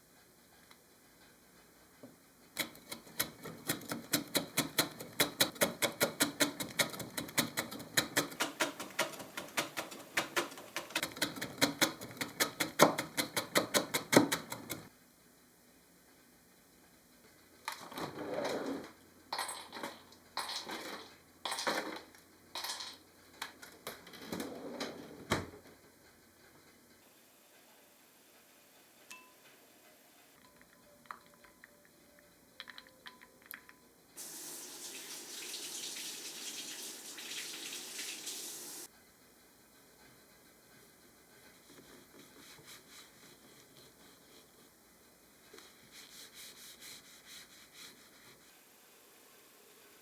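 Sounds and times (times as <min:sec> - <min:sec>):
rapid sharp tapping: 0:02.6 - 0:14.9.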